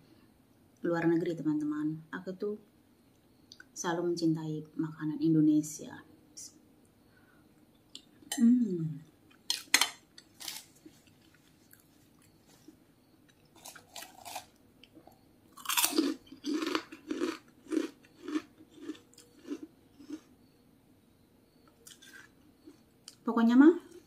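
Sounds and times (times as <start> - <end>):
crunching cracker bite and chews: 9.5 - 10.8, 13.4 - 14.6, 15.5 - 20.3, 21.8 - 23.2
soft chewing clicks: 11.0 - 20.3.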